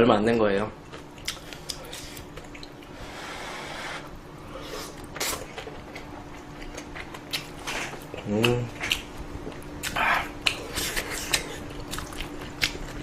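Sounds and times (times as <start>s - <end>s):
faint steady hum: 0.0s - 13.0s
person slurping noodles: 3.0s - 5.4s.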